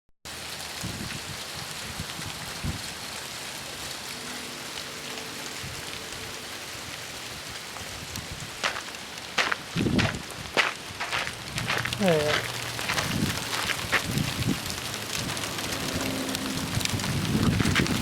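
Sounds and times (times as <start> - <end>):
precipitation pattering on surfaces: 8.6 - 18.0.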